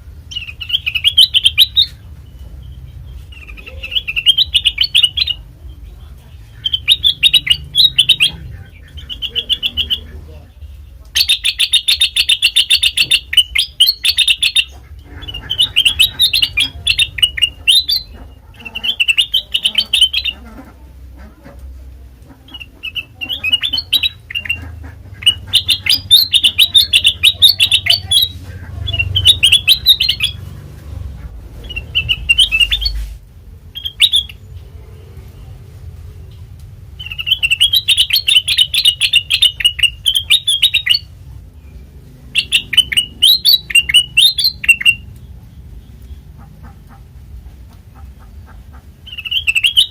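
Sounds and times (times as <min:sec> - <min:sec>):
bulbul singing high chirps: 0:00.3 - 0:05.9, 0:06.5 - 0:10.1, 0:11.2 - 0:14.8, 0:15.5 - 0:18.2, 0:22.6 - 0:30.4, 0:31.6 - 0:33.0, 0:33.7 - 0:34.5, 0:37.0 - 0:45.2, 0:49.0 - 0:49.9.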